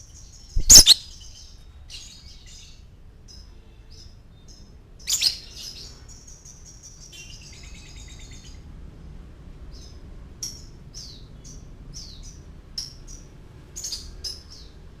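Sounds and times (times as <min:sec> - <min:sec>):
lovebird chirping: 0:00.3 - 0:01.4.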